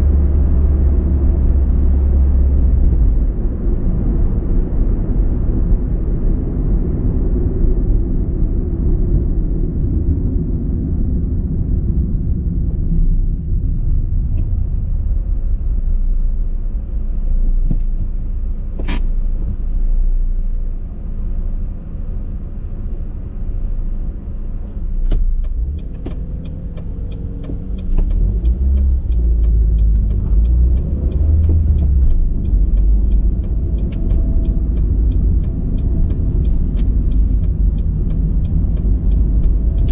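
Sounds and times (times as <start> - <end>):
car engine and road rumble: 0.0 - 39.9
fast regular ticking: 25.3 - 39.9.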